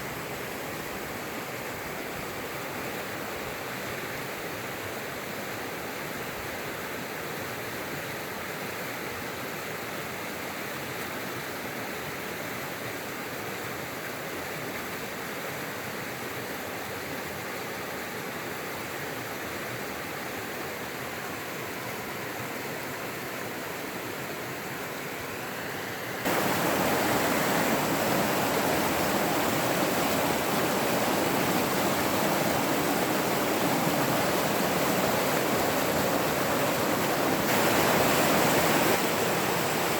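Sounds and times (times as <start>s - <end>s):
running water rushing: 20.9s - 39.9s.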